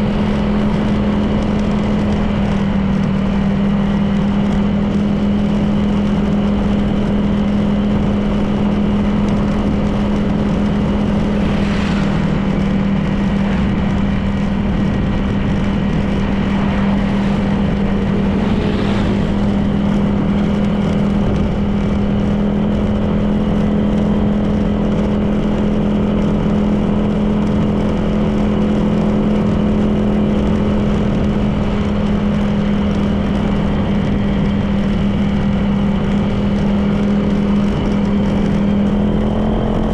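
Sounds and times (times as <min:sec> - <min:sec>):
road noise: 0:00.0 - 0:39.9
scooter engine cruising: 0:00.0 - 0:39.9
brief whooshes: 0:11.3 - 0:13.7, 0:16.3 - 0:20.6.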